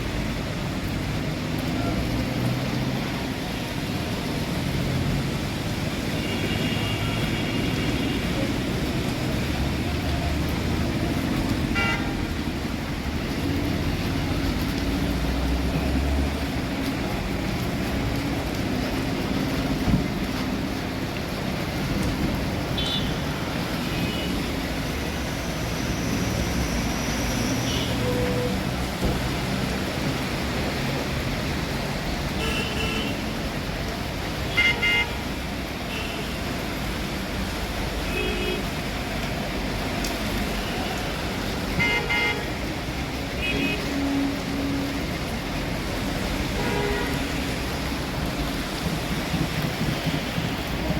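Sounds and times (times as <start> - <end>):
road traffic: 0.0 - 50.9
vehicle horn tooting: 11.8 - 12.1, 34.5 - 35.2.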